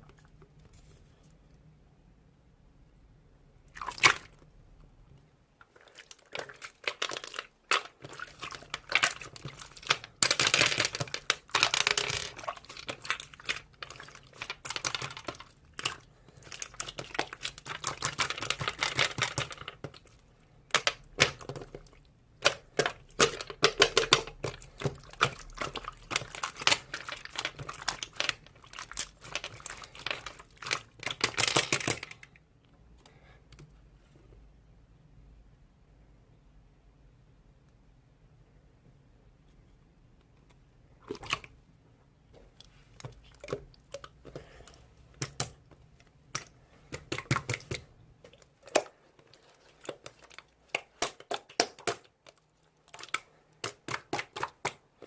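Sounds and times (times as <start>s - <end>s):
slime squishing and popping: 5.9s - 32.3s, 49.6s - 55.0s.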